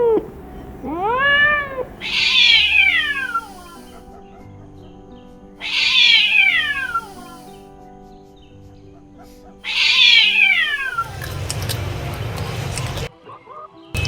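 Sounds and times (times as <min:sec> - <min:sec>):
kitten meowing: 0:00.0 - 0:04.0, 0:05.6 - 0:07.5, 0:09.7 - 0:11.2.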